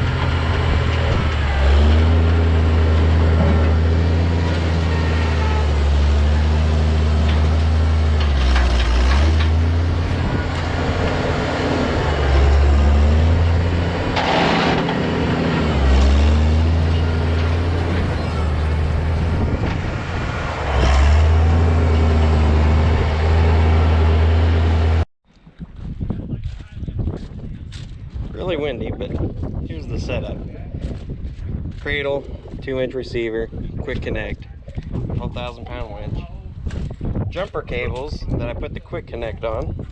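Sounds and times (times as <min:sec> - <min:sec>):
heavy vehicle engine running: 0:00.0 - 0:25.1.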